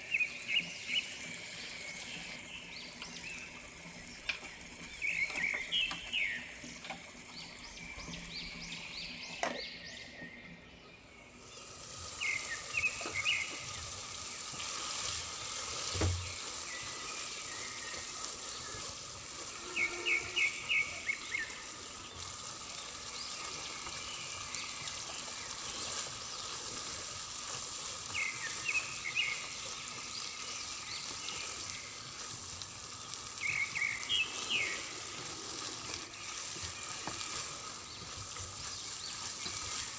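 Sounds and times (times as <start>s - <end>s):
food sizzling in oil: 0.0s - 10.2s, 11.3s - 39.9s
high bird chirps: 0.0s - 11.1s.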